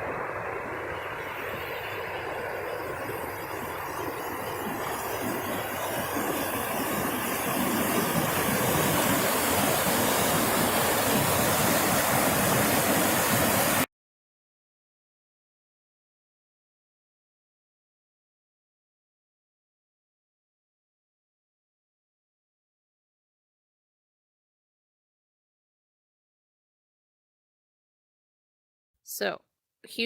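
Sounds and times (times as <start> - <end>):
rushing water of waterfall: 4.4 - 13.9.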